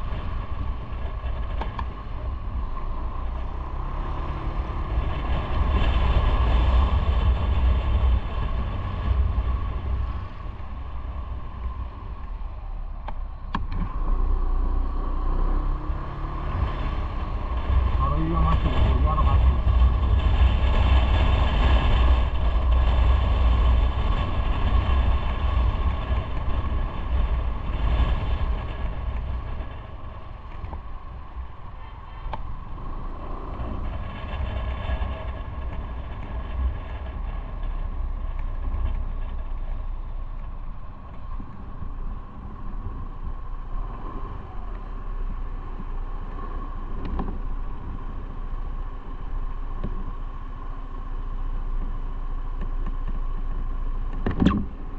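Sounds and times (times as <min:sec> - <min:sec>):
wind rumble: 0:00.0 - 0:54.9.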